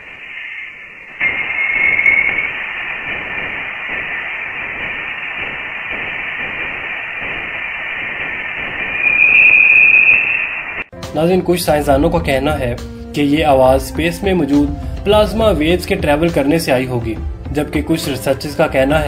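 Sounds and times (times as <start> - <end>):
whistling tone: 0.0 - 6.2, 8.4 - 10.9
static-like hiss: 0.0 - 10.9.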